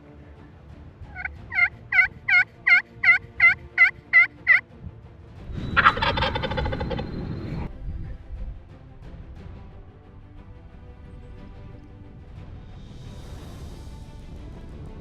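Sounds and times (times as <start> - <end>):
turkey gobble: 1.1 - 4.6, 5.8 - 7.1
turkey yelping: 1.1 - 4.6, 5.8 - 7.1.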